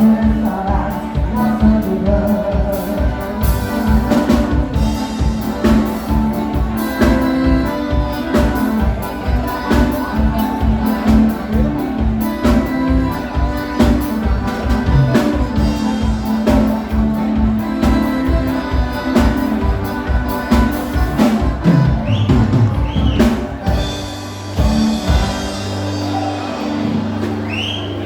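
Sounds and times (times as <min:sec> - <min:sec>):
drum beat: 0:00.0 - 0:27.4
accordion: 0:00.0 - 0:28.0
bass: 0:00.0 - 0:28.0.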